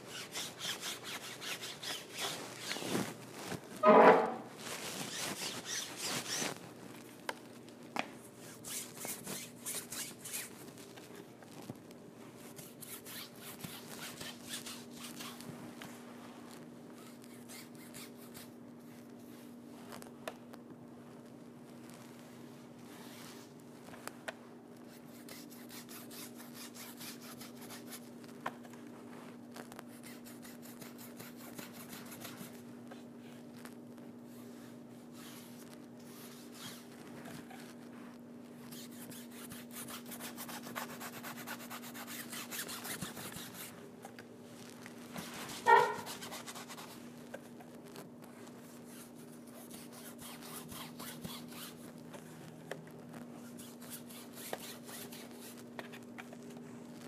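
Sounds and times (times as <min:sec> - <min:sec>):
faint steady hum: 0:00.0 - 0:57.0
loud squeak: 0:03.8 - 0:04.5.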